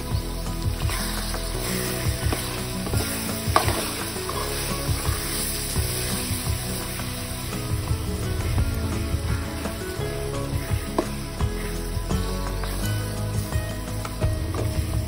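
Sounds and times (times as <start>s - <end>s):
vegetables sizzling in hot oil: 0.0s - 15.0s
spoon scraping wok: 0.4s - 14.2s.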